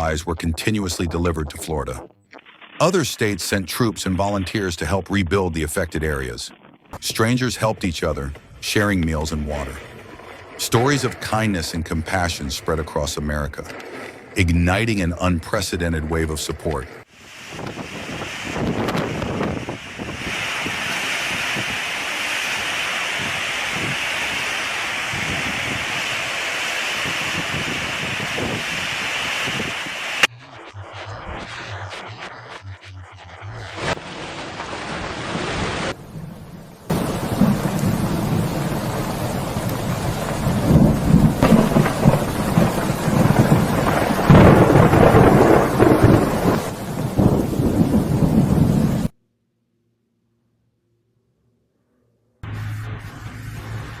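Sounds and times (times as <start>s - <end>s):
storm wind and water rushing: 0.0s - 30.3s, 33.8s - 49.1s
wind rumbling on microphone: 16.6s - 49.1s
heavy rain: 17.3s - 30.3s, 34.0s - 49.1s.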